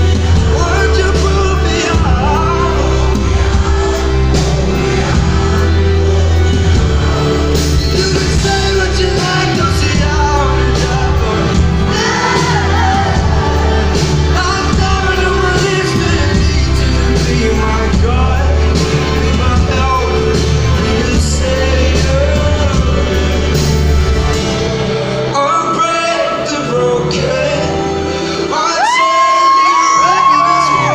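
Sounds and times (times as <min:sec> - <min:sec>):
heavy bass: 0:00.0 - 0:28.1
live band playing: 0:00.0 - 0:30.9
person singing: 0:00.0 - 0:30.9
crowd shouting: 0:11.3 - 0:15.4.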